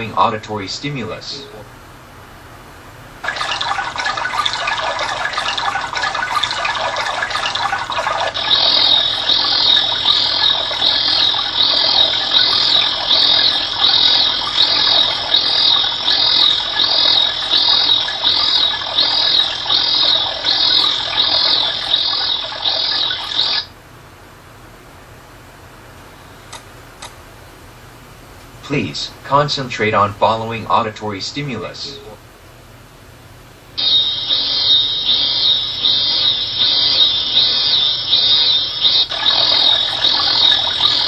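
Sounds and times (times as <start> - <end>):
fast flutter: 3.2 - 23.6, 33.8 - 41.0
rushing water-like noise: 3.2 - 23.7, 33.8 - 41.0
high chirping call: 3.3 - 23.7, 33.8 - 41.0.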